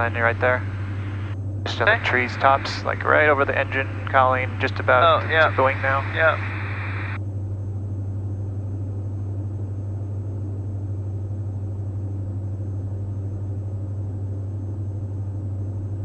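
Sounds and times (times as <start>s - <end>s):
propeller aircraft engines droning: 0.0s - 7.2s.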